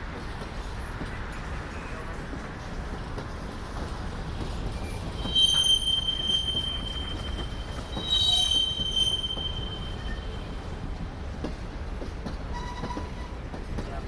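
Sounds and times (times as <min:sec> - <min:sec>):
freight train rumbling past: 0:00.0 - 0:14.0
steel wheels squealing on rail: 0:03.7 - 0:11.1, 0:12.4 - 0:13.6.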